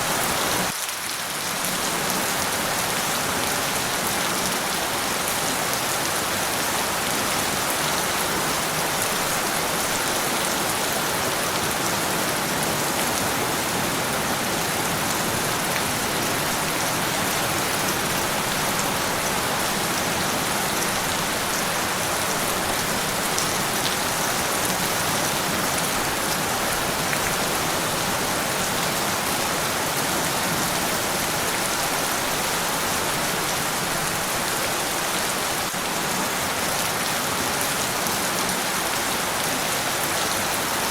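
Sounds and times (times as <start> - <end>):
rain pattering on a surface: 0.0 - 40.9.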